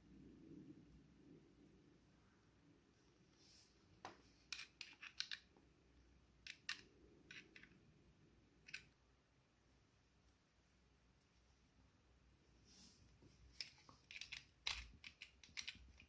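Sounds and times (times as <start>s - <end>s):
small sharp clicks and snips: 13.6s - 16.0s.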